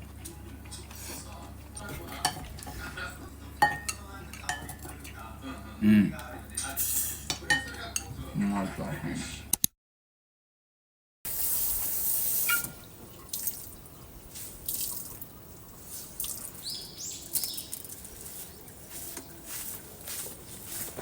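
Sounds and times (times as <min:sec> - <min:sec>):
kitchen tap running: 0:11.3 - 0:21.0
water dripping: 0:11.4 - 0:19.3.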